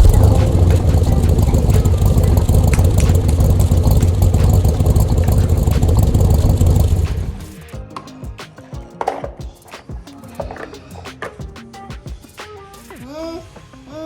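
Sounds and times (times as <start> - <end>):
loud engine-like rumble: 0.0 - 7.6.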